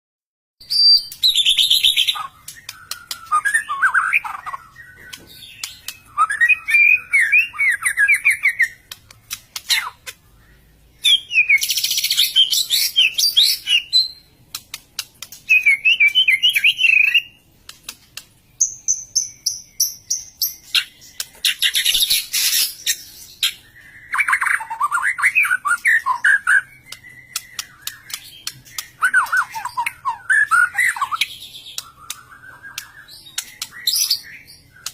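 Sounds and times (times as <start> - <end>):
songbird singing: 0.6 - 34.9
sharp clicks: 2.4 - 3.7, 4.3 - 6.1, 8.6 - 10.2, 14.5 - 16.2, 17.6 - 18.4, 26.8 - 30.0, 31.2 - 34.9.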